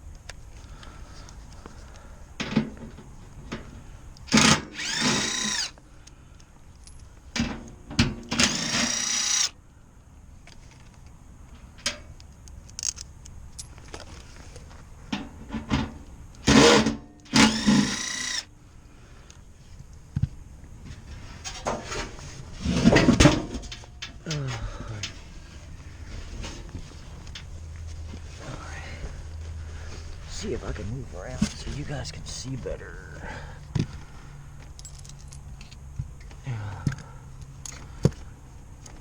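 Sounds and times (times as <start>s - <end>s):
cordless drill whining: 4.3s - 5.8s, 8.3s - 9.6s, 16.4s - 18.5s.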